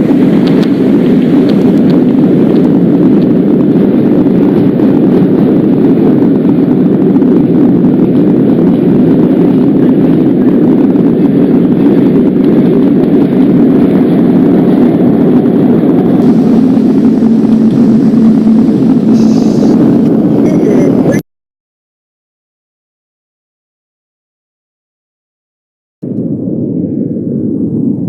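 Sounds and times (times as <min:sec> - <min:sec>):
subway train rumbling: 0:00.0 - 0:21.2.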